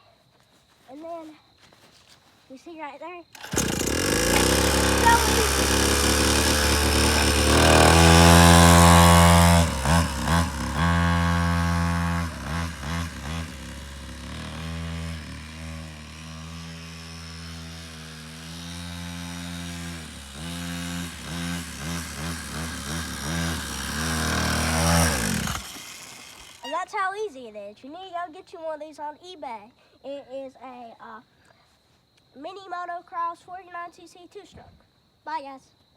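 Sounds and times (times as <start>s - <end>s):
two-stroke motorcycle engine revving: 3.4s - 26.8s.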